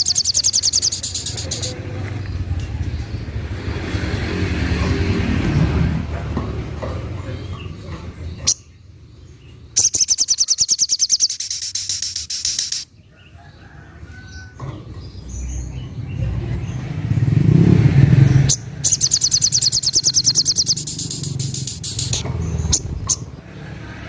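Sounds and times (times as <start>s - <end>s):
bird rapid trill: 0.0s - 1.8s, 9.8s - 13.0s, 18.3s - 23.3s.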